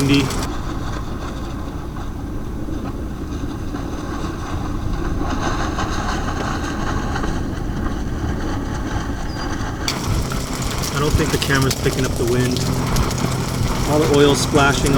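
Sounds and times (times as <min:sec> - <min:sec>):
fish frying in oil: 0:00.0 - 0:00.5, 0:09.9 - 0:14.9
strong wind buffeting microphone: 0:00.0 - 0:14.9.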